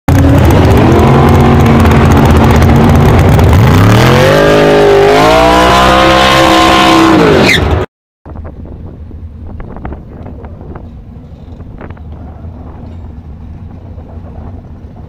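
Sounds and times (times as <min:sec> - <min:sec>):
loud engine revving: 0:00.1 - 0:07.9
tyre burnout: 0:00.1 - 0:07.9.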